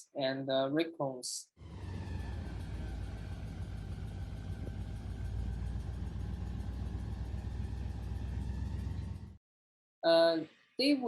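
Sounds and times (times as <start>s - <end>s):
engine running: 1.6s - 9.4s.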